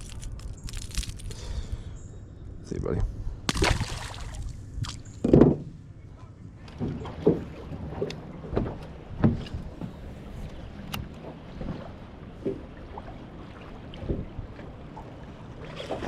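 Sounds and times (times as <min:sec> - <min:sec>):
water lapping against boat hull: 0:03.5 - 0:16.0.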